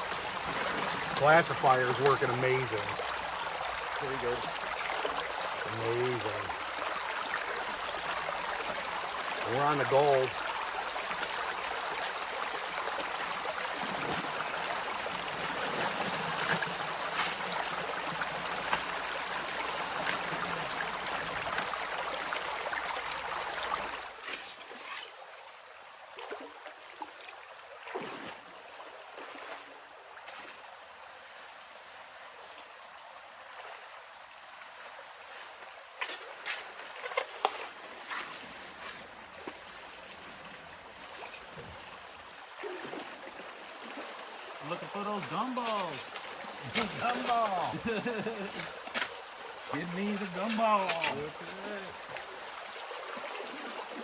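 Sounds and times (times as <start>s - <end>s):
river water rushing: 0.0s - 24.2s, 39.2s - 54.0s.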